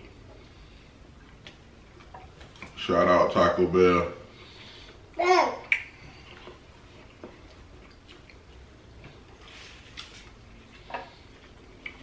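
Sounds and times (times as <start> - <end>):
chewing mouth clicks and smacks: 9.9 - 12.0.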